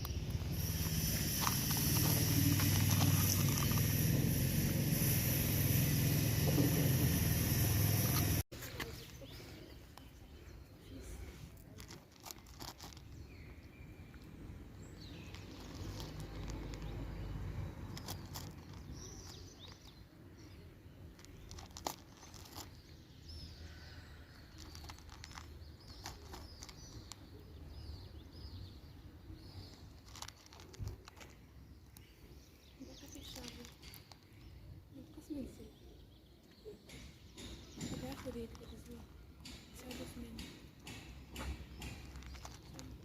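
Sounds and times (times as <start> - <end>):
sharp clicks and crinkles: 0.0 - 4.1, 11.6 - 13.6, 15.0 - 20.0, 21.0 - 23.0, 24.4 - 27.5, 29.6 - 32.2, 33.0 - 34.4, 36.9 - 43.0
small birds chirping: 0.0 - 43.0.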